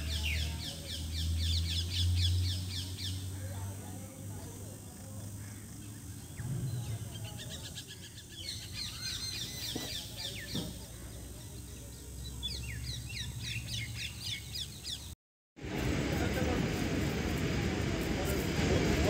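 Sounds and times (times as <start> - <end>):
low steady rumble: 1.4 - 7.8.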